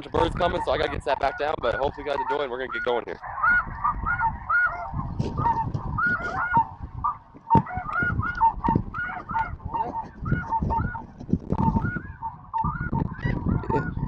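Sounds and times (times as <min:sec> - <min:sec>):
snow geese honking: 0:00.0 - 0:14.0.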